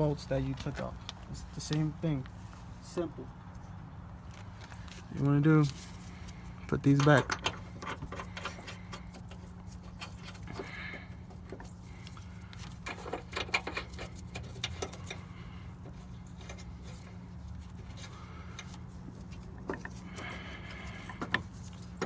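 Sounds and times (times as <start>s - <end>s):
steady low hum: 0.0s - 22.0s
metallic clinks of bolts and tools: 7.0s - 9.2s.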